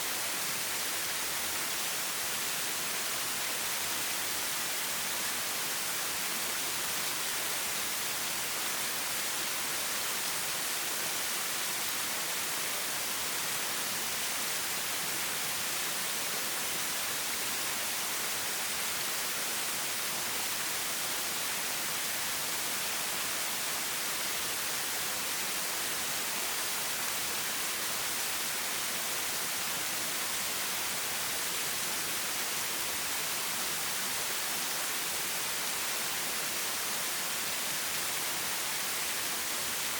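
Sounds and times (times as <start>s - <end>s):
stream water running: 0.0s - 39.9s.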